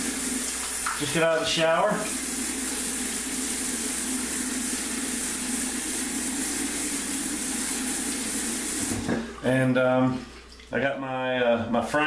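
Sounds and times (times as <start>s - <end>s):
tap running into sink: 0.0s - 1.2s, 3.6s - 9.4s.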